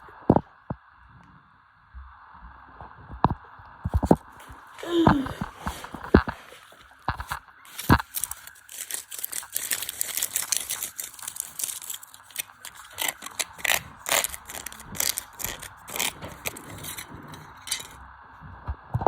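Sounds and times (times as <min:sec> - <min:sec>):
loose parts clattering and banging: 0:07.1 - 0:18.0.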